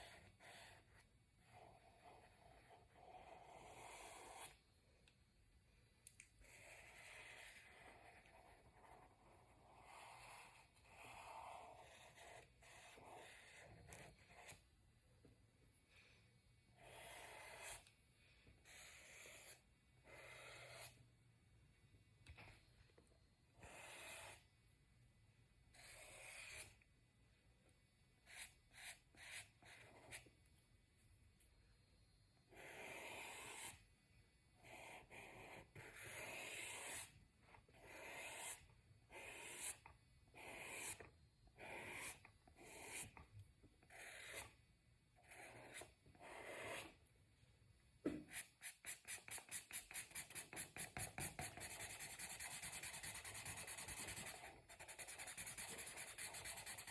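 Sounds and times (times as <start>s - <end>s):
colouring strokes on paper: 0.0s - 4.6s, 6.4s - 14.7s, 16.8s - 17.9s, 18.6s - 21.0s, 32.5s - 33.8s, 34.6s - 43.2s, 45.2s - 47.0s, 48.3s - 56.9s.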